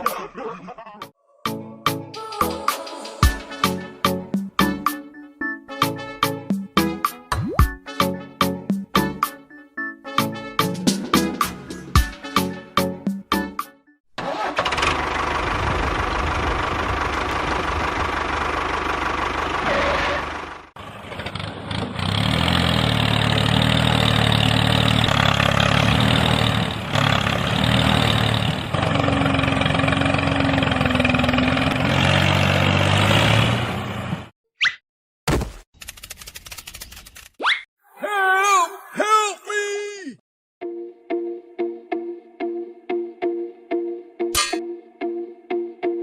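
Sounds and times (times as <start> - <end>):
engine running: 14.2 - 34.3.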